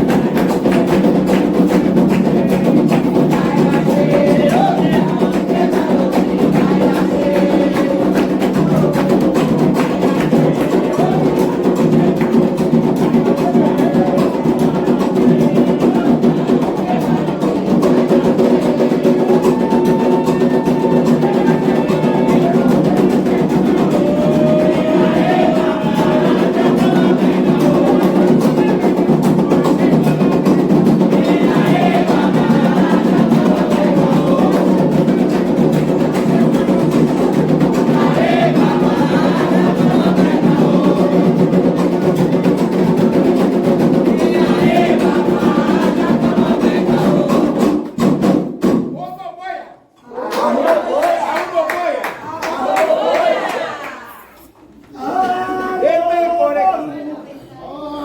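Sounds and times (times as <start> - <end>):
voices singing: 0.0 - 48.1
hand drums playing a rhythm: 0.0 - 49.0.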